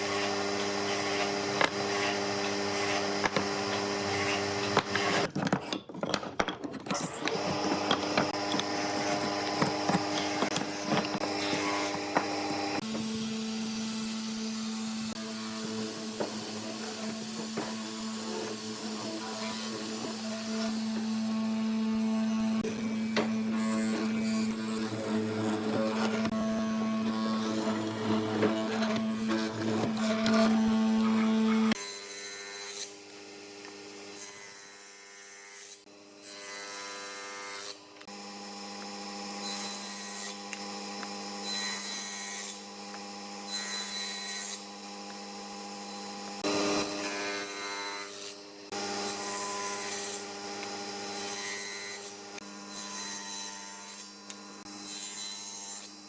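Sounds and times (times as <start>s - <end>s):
power tool motor humming: 0.0s - 5.3s, 6.9s - 31.9s
tool rubbing on wood: 0.0s - 13.5s, 15.1s - 31.8s.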